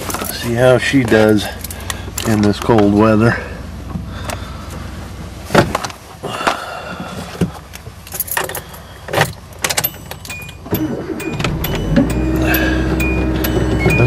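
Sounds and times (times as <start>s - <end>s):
keys jangling: 8.0s - 10.6s.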